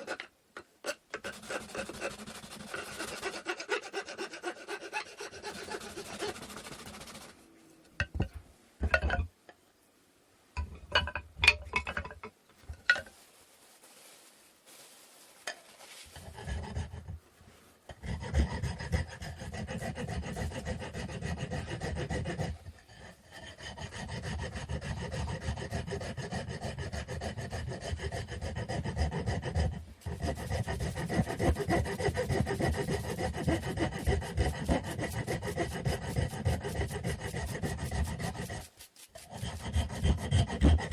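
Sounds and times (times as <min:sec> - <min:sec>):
hand tool rasping wood: 0:00.0 - 0:07.4, 0:18.3 - 0:22.6, 0:25.8 - 0:40.9
wood knocks and taps: 0:08.0 - 0:09.3.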